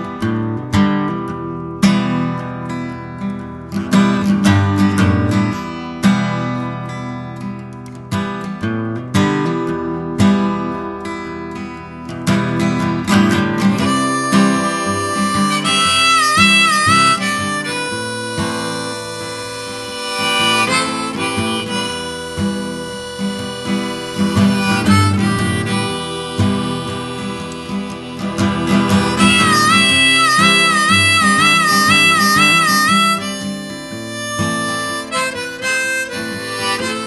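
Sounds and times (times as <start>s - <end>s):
strummed acoustic guitar: 0.0s - 37.0s
harmonica wavering notes: 13.1s - 37.0s.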